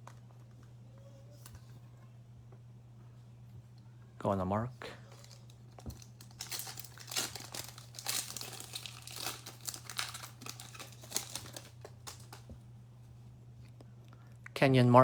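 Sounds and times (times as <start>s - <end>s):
steady low hum: 0.0s - 15.0s
foil wrapper crinkling and tearing: 5.0s - 12.5s.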